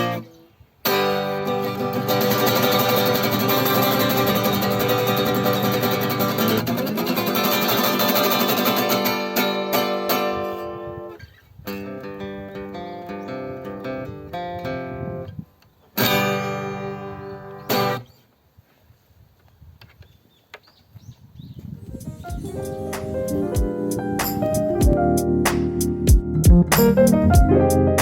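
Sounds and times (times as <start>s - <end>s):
acoustic guitar strumming chords: 0.0s - 11.1s, 16.0s - 18.0s, 22.3s - 28.0s.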